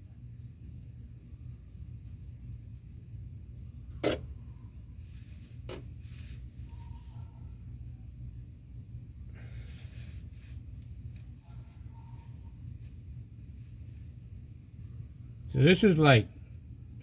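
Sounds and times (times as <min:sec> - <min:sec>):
crickets chirping: 0:00.0 - 0:17.0
low steady hum: 0:00.0 - 0:17.0.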